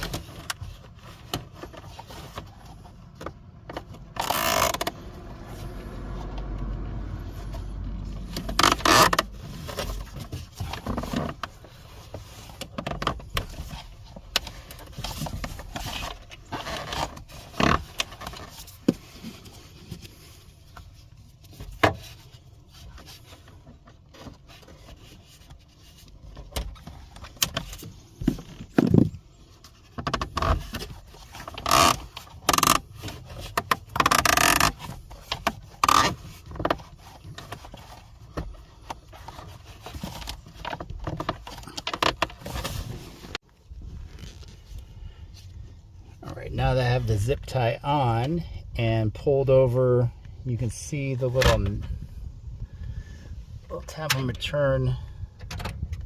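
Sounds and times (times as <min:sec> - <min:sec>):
plastic scraping: 0:00.0 - 0:47.1.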